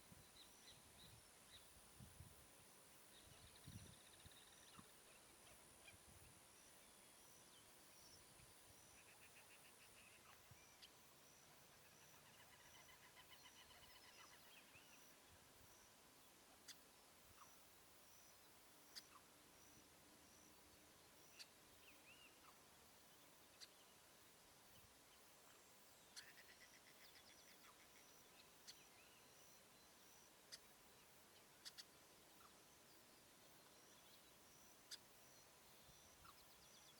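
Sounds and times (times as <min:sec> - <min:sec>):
small birds chattering: 0:18.3 - 0:19.8, 0:30.3 - 0:36.9.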